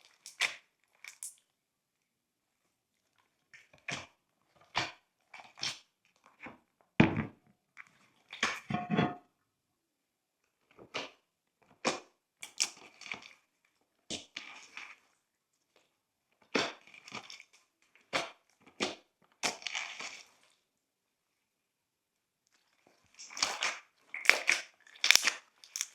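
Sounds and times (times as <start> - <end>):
slime crackling and popping: 24.2 - 25.9.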